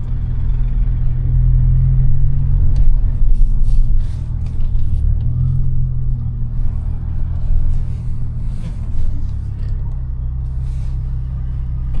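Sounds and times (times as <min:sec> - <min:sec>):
car engine drone: 0:00.0 - 0:12.0
tyre and road rumble: 0:00.0 - 0:12.0.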